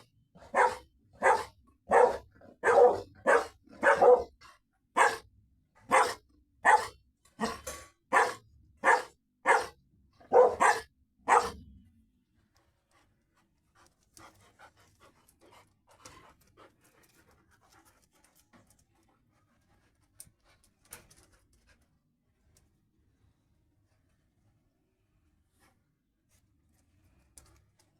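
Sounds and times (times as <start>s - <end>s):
large dog barking: 0.4s - 11.7s.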